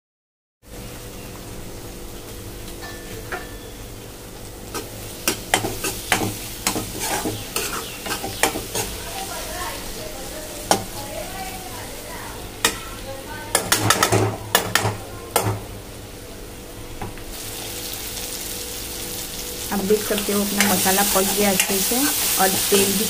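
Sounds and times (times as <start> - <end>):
masala sizzling in oil: 0.6 - 23.0
metal spoon scraping pan: 4.7 - 9.0.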